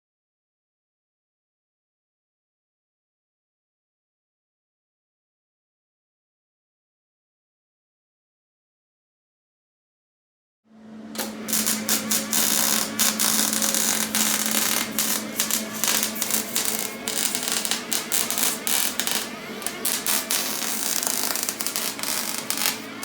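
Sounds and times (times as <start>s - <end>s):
steady hum: 10.7s - 23.0s
harsh irregular crackle: 11.2s - 23.0s.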